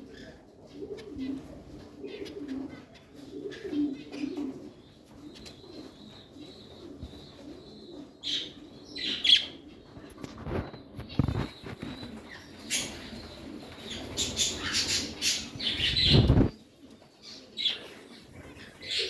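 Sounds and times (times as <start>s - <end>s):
birds cooing softly: 0.0s - 19.0s
wing flutter thumps: 15.8s - 16.5s.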